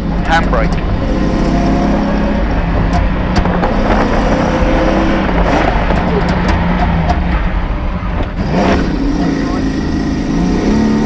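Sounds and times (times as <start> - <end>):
rally car engine revving: 0.0 - 11.0
sharp clicks and rattles: 0.1 - 1.6, 2.4 - 8.7.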